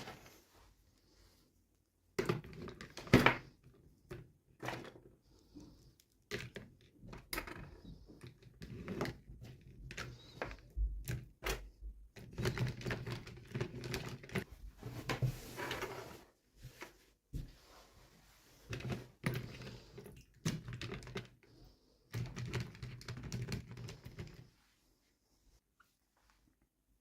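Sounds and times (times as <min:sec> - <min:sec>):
plastic toys clicking and tapping: 0:06.0 - 0:14.5, 0:18.7 - 0:21.5, 0:22.1 - 0:24.4.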